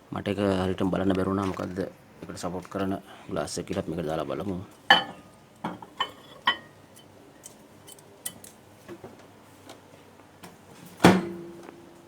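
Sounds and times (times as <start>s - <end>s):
glass and plastic clinking: 4.9s - 8.6s.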